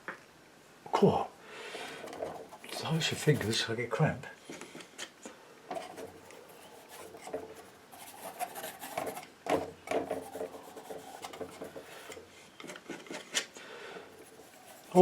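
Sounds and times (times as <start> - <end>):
painting knife scraping paint: 2.0 - 3.7, 5.7 - 9.3, 9.9 - 12.2, 14.1 - 15.0.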